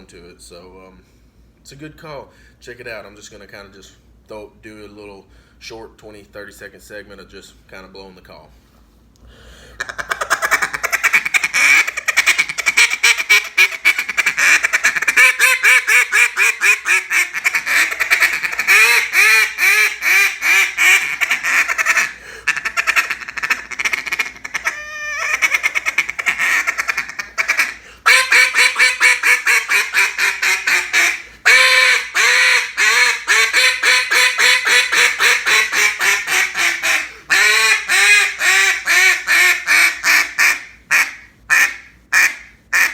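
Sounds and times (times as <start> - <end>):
duck call quacking: 9.8 - 42.9.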